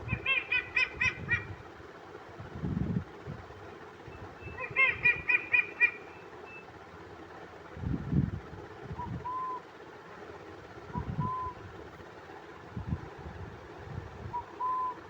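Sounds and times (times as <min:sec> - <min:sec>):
owl calls: 0:00.0 - 0:01.6, 0:04.1 - 0:06.7, 0:08.9 - 0:09.7, 0:10.9 - 0:11.6, 0:14.3 - 0:15.0
whistled hoots: 0:04.1 - 0:06.7, 0:09.0 - 0:09.7, 0:10.9 - 0:11.6, 0:14.3 - 0:15.0.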